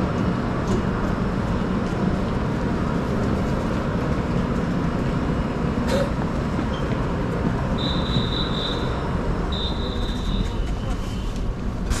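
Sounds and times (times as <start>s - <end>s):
passengers boarding: 0.0s - 12.0s
train rumbling: 0.0s - 12.0s.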